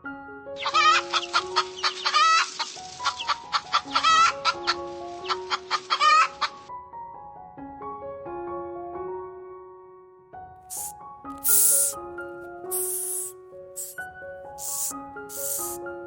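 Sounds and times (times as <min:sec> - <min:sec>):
soft piano music: 0:00.0 - 0:16.0
chickens clucking: 0:00.6 - 0:06.6.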